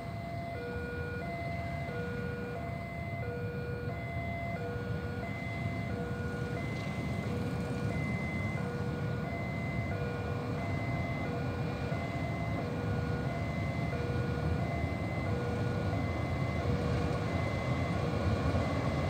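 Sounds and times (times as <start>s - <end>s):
train rumbling over steel bridge: 15.2s - 19.0s.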